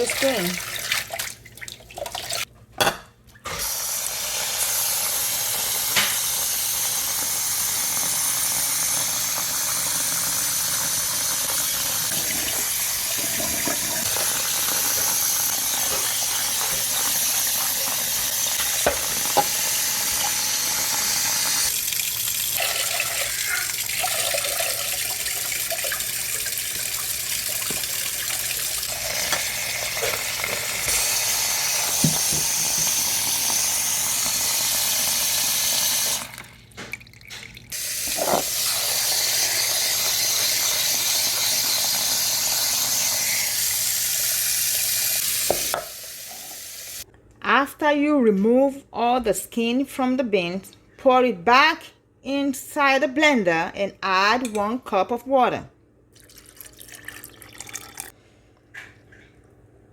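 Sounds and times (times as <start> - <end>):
tap water running into a pan: 0.0 - 2.5, 3.6 - 47.0, 56.2 - 58.2.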